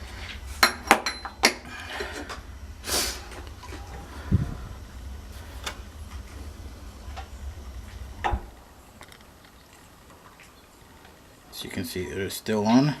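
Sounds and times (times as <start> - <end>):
gas burner rumbling: 0.0 - 12.6.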